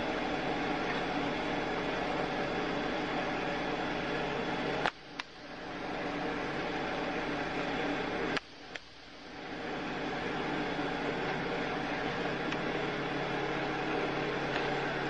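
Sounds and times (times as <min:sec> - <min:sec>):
background hiss and hum: 0:00.0 - 0:15.0
click: 0:04.8 - 0:05.3, 0:08.3 - 0:08.9, 0:12.5 - 0:12.7.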